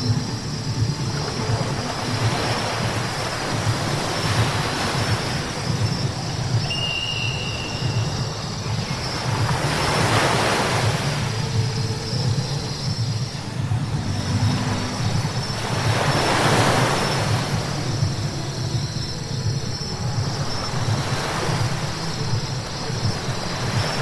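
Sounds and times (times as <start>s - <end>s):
brief high whine: 6.6s - 8.4s.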